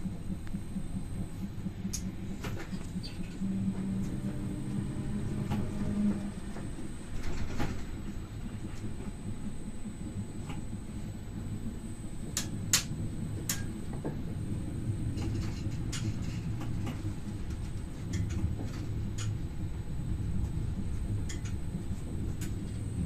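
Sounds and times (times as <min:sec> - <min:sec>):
electric train running rumble: 0:00.0 - 0:23.0.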